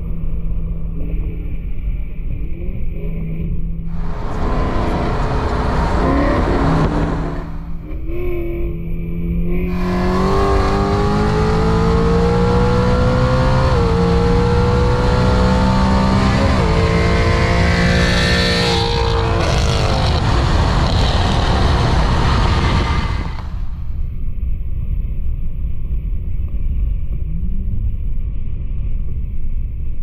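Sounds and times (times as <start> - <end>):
road and tyre rumble: 0.0 - 30.0
car engine under full throttle: 3.9 - 24.0.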